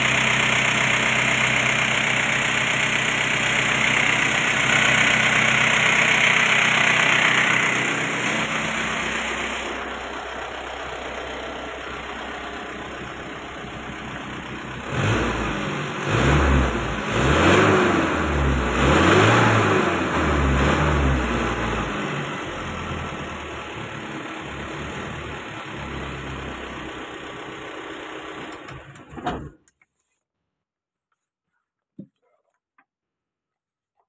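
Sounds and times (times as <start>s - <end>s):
diesel engine idling and revving: 0.0s - 29.1s.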